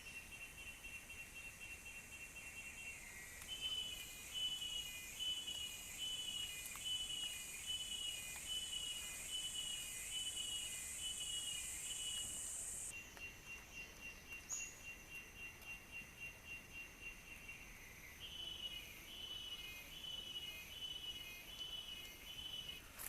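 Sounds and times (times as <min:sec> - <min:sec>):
insect chirping: 0:00.0 - 0:23.0
thin insect trill: 0:00.1 - 0:23.0
insect high buzz: 0:02.6 - 0:12.9.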